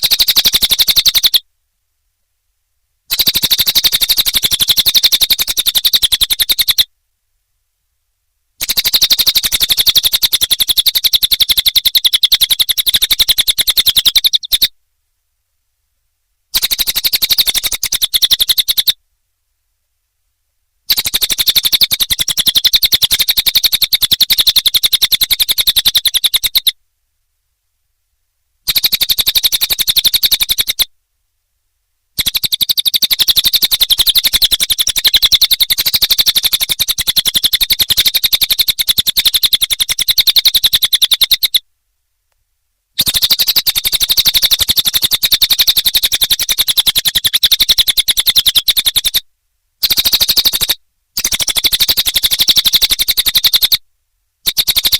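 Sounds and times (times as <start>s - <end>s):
bird song rattling chirps: 0.0s - 1.4s, 3.1s - 6.9s, 8.6s - 14.8s, 16.5s - 19.0s, 20.9s - 26.8s, 28.6s - 30.9s, 32.2s - 41.6s, 43.0s - 49.2s, 49.8s - 53.8s, 54.4s - 54.9s.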